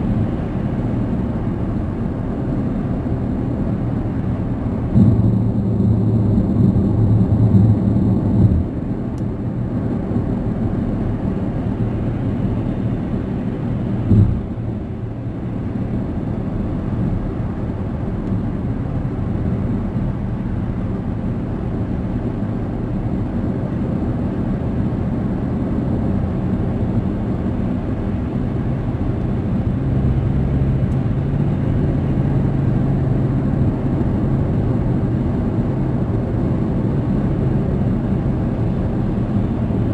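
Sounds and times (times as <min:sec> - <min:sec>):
car cabin road noise: 0:00.0 - 0:39.9
thump: 0:14.1 - 0:14.6.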